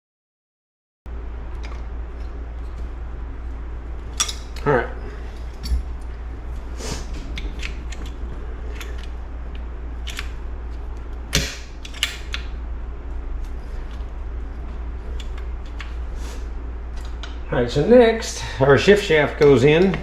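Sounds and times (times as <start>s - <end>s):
steady low hum: 1.1s - 20.0s
metal tools clicking and clinking: 4.1s - 4.7s.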